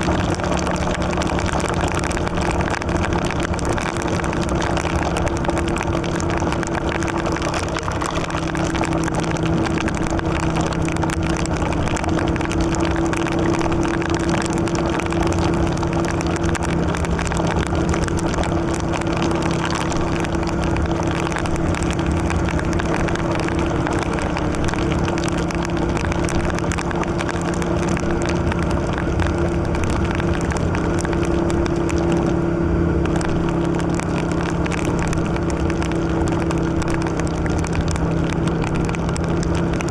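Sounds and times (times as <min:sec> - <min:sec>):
wind and tyres on wet road: 0:00.0 - 0:39.9.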